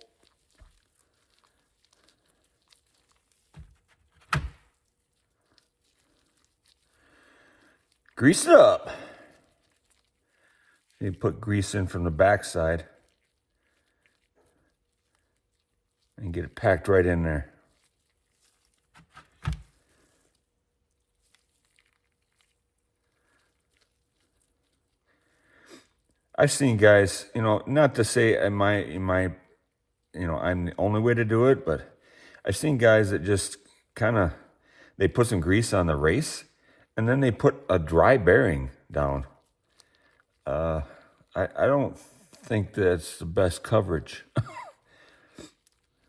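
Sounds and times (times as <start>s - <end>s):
faint handling sounds: 0.0s - 26.9s, 37.8s - 46.0s.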